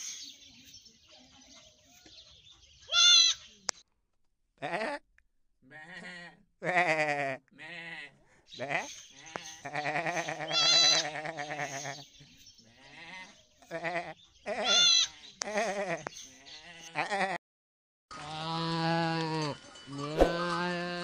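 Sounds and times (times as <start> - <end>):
sheep and goats bleating: 2.9 - 3.4, 4.6 - 5.0, 5.6 - 17.4, 18.1 - 21.0.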